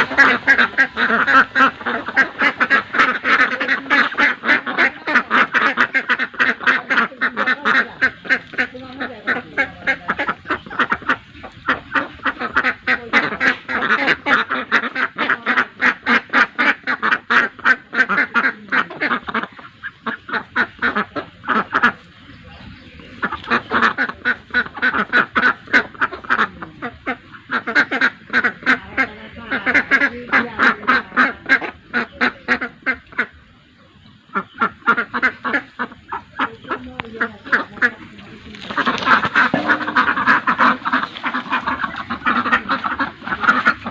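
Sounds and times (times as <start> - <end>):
ducks quacking: 0.0 - 43.9.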